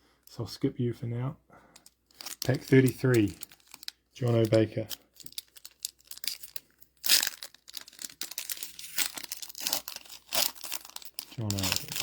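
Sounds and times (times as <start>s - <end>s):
wrapper crinkling: 1.8s - 12.0s.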